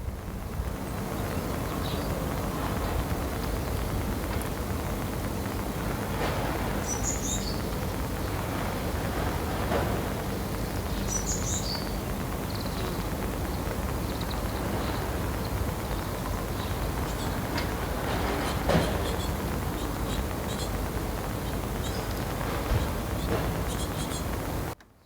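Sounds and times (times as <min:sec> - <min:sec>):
sparrow chirping: 0:06.8 - 0:07.7, 0:10.6 - 0:13.0, 0:13.6 - 0:24.8.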